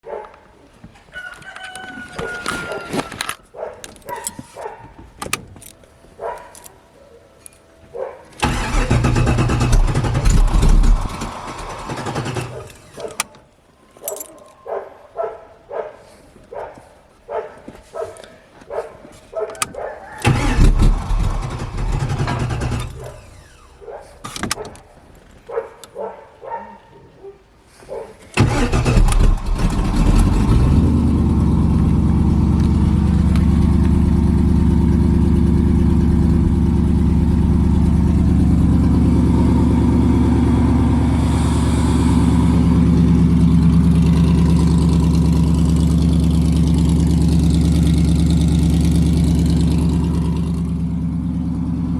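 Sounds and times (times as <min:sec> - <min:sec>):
car engine starting and idling: 0:08.4 - 0:13.1, 0:20.2 - 0:24.6, 0:28.4 - 0:51.9.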